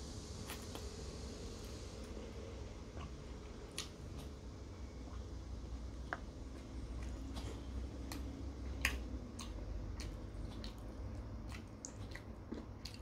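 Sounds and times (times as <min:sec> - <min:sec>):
man chewing noodle soup: 0:05.0 - 0:13.0
wet mouth clicks and smacks: 0:07.0 - 0:13.0.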